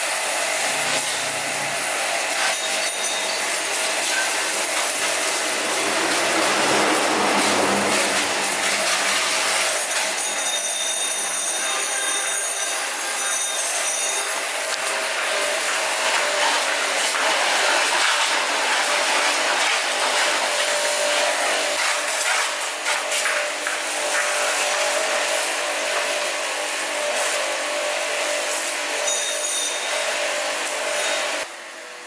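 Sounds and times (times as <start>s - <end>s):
motor humming: 3.3s - 9.8s.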